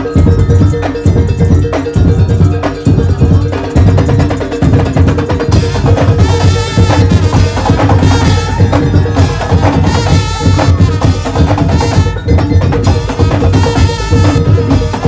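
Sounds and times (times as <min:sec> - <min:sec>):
wooden slit drums and drums: 0:00.0 - 0:15.0.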